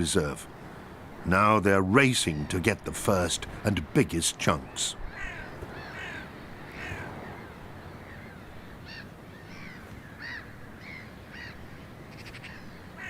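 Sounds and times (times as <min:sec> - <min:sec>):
low steady background hiss: 0:00.0 - 0:13.0
birds harsh calls: 0:04.5 - 0:13.0.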